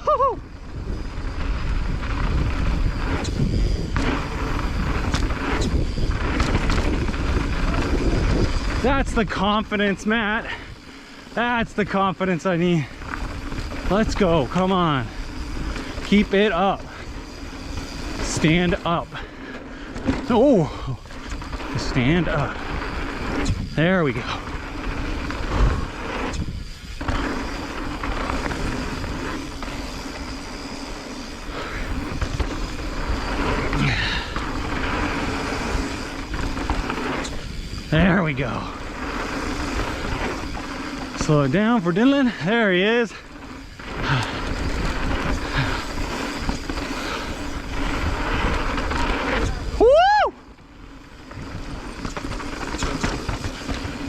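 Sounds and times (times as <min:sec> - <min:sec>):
wind on microphone: 0:00.0 - 0:09.4, 0:22.0 - 0:29.9, 0:31.4 - 0:40.7, 0:43.7 - 0:50.3
bike rattling: 0:00.0 - 0:54.0
bike tyres rumbling on dirt: 0:00.0 - 0:54.0.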